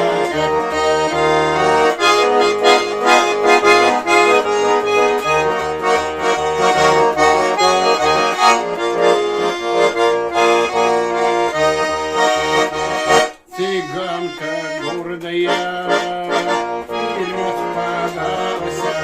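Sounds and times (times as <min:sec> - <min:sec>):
button accordion folk melody: 0:00.0 - 0:19.0.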